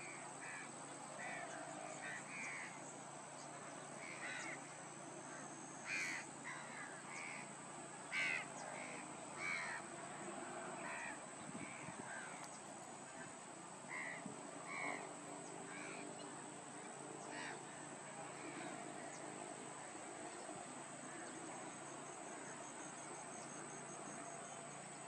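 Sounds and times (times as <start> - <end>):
harsh cawing bird calls: 0.0 - 2.9, 4.0 - 10.0, 10.7 - 15.1, 15.7 - 16.2, 17.2 - 19.2, 21.0 - 21.4.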